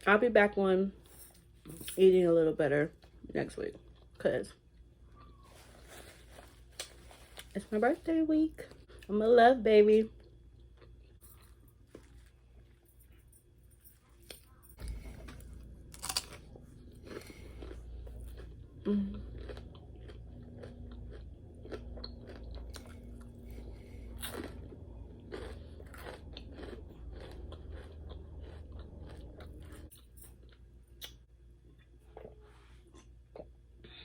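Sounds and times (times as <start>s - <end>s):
chewing crispy chicken: 14.0s - 31.2s.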